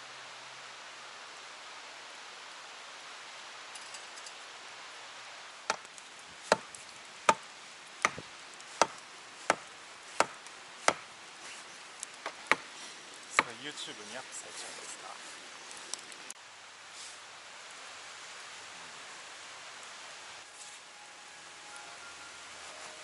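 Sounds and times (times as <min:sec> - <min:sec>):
steady hiss: 0:00.0 - 0:23.0
sharp chopping blows: 0:06.5 - 0:11.1, 0:12.2 - 0:12.7, 0:13.4 - 0:13.6.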